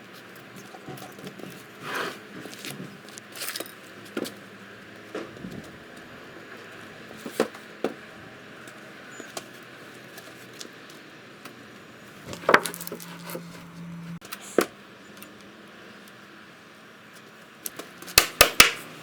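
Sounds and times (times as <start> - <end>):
steady low hum: 11.7 - 14.2
wooden boards knocking: 12.3 - 13.4.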